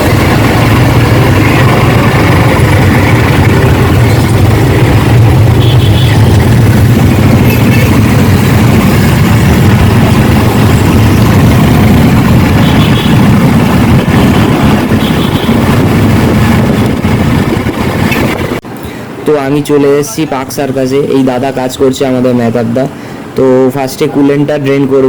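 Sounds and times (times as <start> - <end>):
motorcycle engine humming: 0.0 - 18.6.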